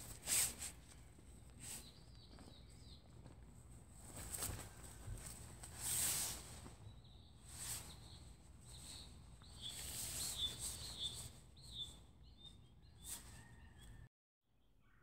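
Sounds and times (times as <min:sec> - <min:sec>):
rustling: 0:00.0 - 0:12.0
bird chirping: 0:00.8 - 0:03.4, 0:04.2 - 0:15.0.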